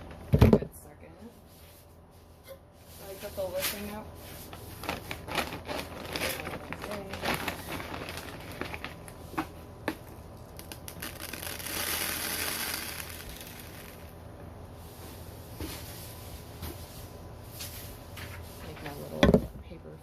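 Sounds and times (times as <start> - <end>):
plastic bag crinkling: 3.7 - 14.2
dry seed pouring: 10.6 - 14.1.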